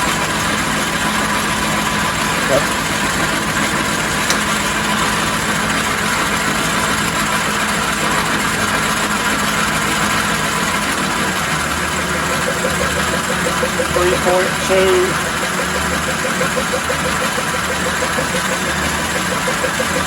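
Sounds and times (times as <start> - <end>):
metal lathe cutting: 0.0 - 20.0.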